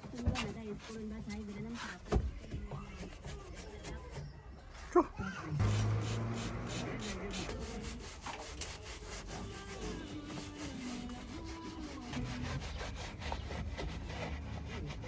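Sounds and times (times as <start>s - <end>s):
scrubbing car interior: 5.6s - 15.0s.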